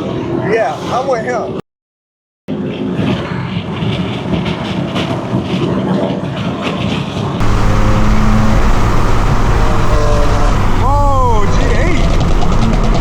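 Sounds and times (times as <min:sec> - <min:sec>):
engine and road noise: 0:07.4 - 0:13.0
low exhaust drone: 0:07.4 - 0:13.0.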